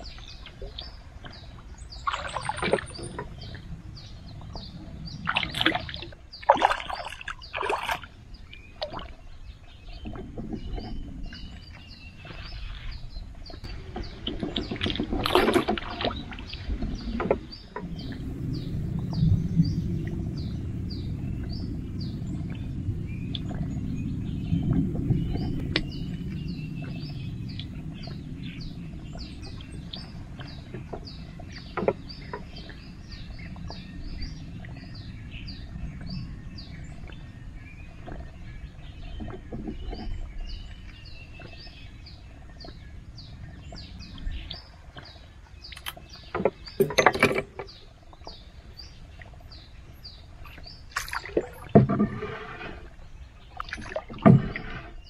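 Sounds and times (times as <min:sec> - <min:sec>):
birds chirping: 0:00.0 - 0:55.0
low rumble: 0:08.2 - 0:46.7.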